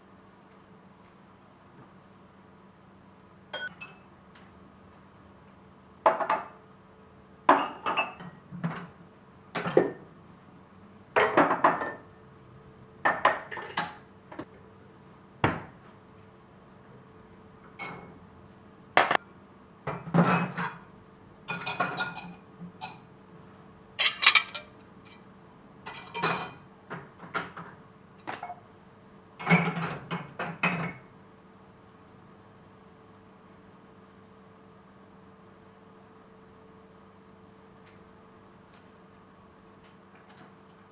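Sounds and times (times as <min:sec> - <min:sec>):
dishes and cutlery clattering: 0:24.0 - 0:25.2.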